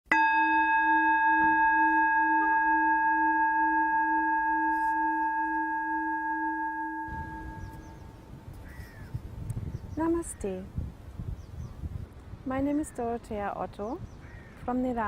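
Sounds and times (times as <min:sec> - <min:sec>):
singing bowl ringing: 0:00.1 - 0:08.6.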